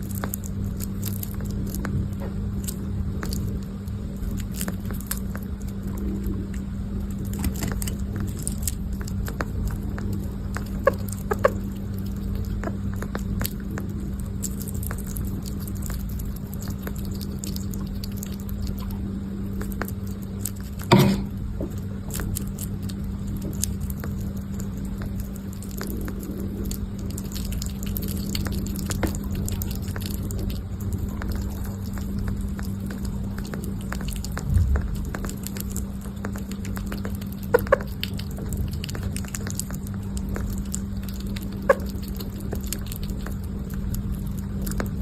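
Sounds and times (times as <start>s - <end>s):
steady low hum: 0.0s - 45.0s
loud bump: 20.9s - 21.4s.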